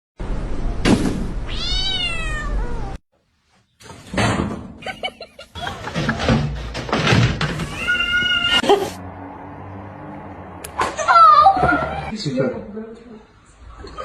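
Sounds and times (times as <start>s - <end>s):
cat meowing: 1.5s - 3.0s, 7.6s - 8.7s.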